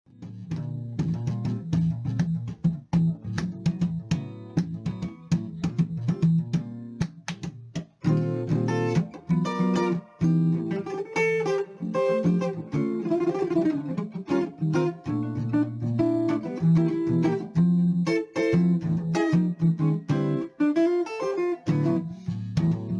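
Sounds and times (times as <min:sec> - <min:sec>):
jazz guitar music: 0:00.1 - 0:22.9.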